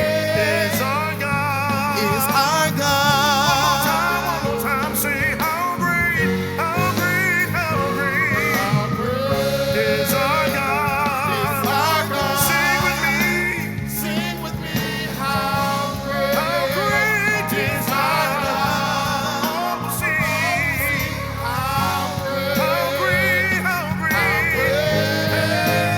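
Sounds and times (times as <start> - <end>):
band playing sustained chords: 0.0 - 25.9
person singing melismatically: 0.0 - 25.9.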